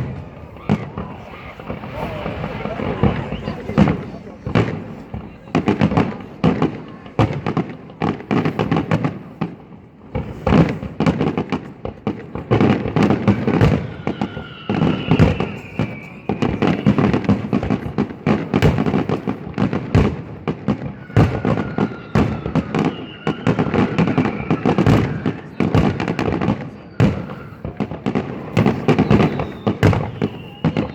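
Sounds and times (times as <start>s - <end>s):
firework whistles gliding down: 0.0s - 6.2s, 13.2s - 18.0s, 20.8s - 30.9s
fireworks bangs and crackles: 0.0s - 30.9s.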